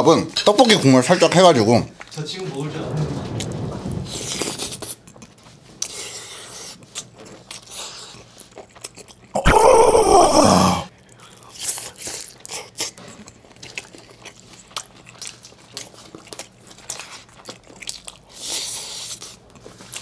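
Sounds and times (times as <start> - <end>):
chewing and crunching food: 4.3 - 10.2, 10.8 - 20.0.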